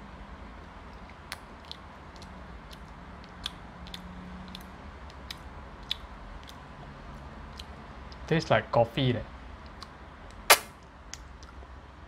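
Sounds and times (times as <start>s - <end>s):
person chewing sticky food: 0.6s - 8.3s
wet mouth clicks: 1.0s - 6.6s, 7.5s - 8.3s.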